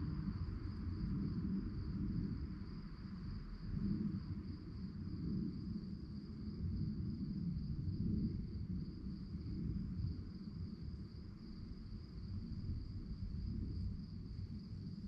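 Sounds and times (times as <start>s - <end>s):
crickets chirping: 0.0s - 15.0s
low background rumble: 0.0s - 15.0s.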